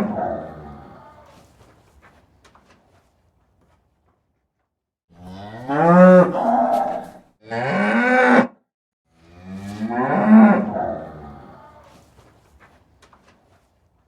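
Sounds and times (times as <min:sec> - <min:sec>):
cow mooing: 0:05.1 - 0:08.5, 0:09.1 - 0:11.9.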